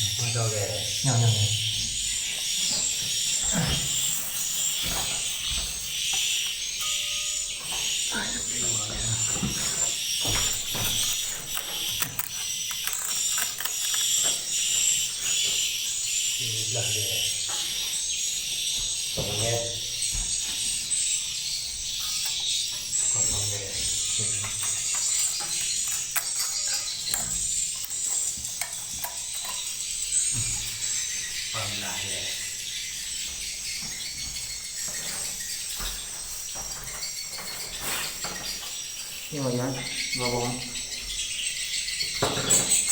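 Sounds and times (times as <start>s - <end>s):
swiftlets twittering: 0.0s - 33.3s
sharp clicks and scrapes: 10.4s - 15.4s, 24.4s - 29.8s.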